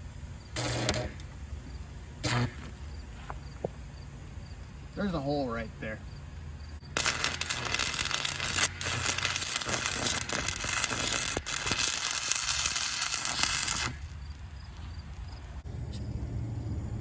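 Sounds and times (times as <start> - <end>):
welding arc crackling: 0.0 - 3.1, 6.8 - 15.6.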